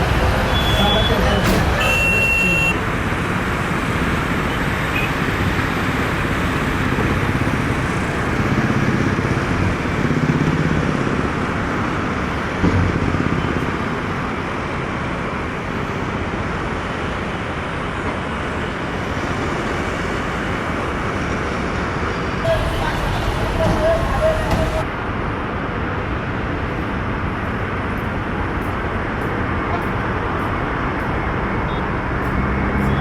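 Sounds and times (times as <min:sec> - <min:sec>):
loud engine rush: 0:00.0 - 0:14.8, 0:22.4 - 0:24.9
thump: 0:01.4 - 0:02.1.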